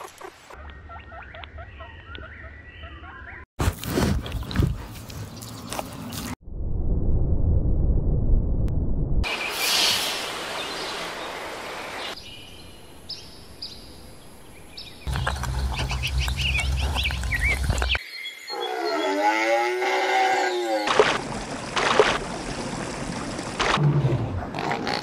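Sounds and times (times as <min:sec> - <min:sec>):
birds chirping: 0:00.0 - 0:03.5, 0:09.3 - 0:21.0
rushing hiss: 0:09.3 - 0:11.8
long rising and falling animal call: 0:18.5 - 0:20.9.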